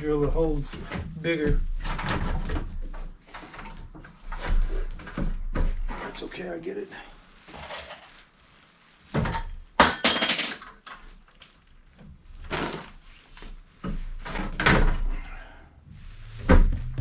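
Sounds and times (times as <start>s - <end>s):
pipe knocking against wooden studs: 16.1s - 17.0s.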